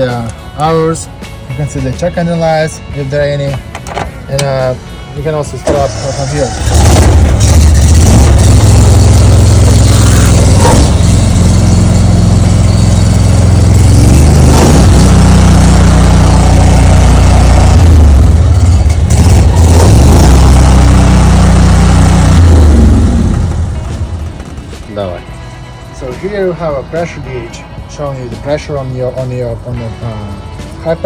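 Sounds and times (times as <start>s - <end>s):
engine running loudly: 5.6s - 25.3s.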